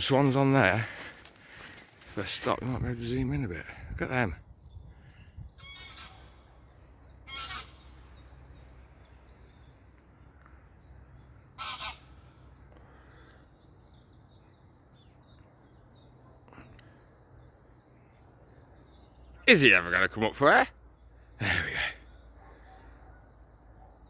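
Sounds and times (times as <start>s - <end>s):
small birds chirping: 0.0s - 24.0s
waterfowl honking: 7.2s - 8.1s, 11.6s - 12.1s.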